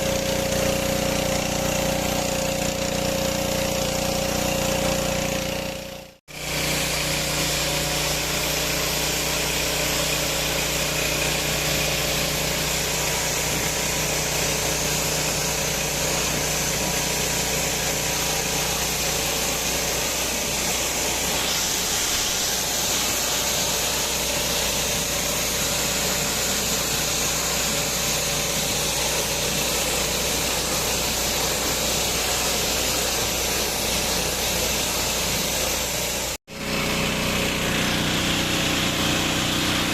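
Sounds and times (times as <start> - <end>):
pressure washer engine running: 0.0 - 39.9
broad hiss: 6.3 - 36.4.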